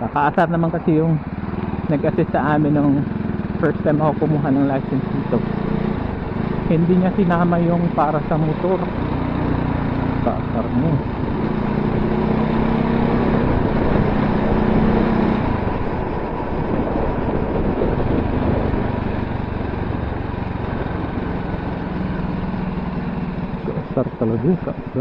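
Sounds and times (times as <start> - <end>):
motorcycle engine running: 0.0 - 25.0
riding wind rush: 8.5 - 25.0.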